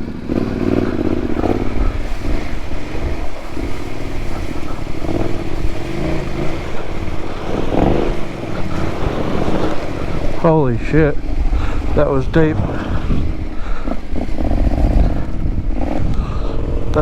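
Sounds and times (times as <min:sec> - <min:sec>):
motorcycle engine revving: 0:00.0 - 0:17.0
water rushing and splashing: 0:00.0 - 0:17.0.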